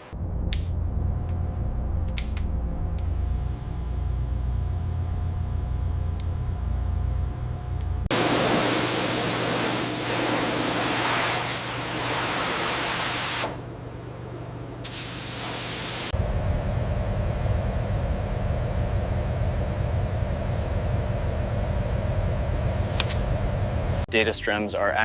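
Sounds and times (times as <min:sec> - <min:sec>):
low machine rumble: 0:00.0 - 0:09.3, 0:13.5 - 0:14.9, 0:16.1 - 0:24.1
loud spraying hiss: 0:08.1 - 0:13.6, 0:14.8 - 0:16.1.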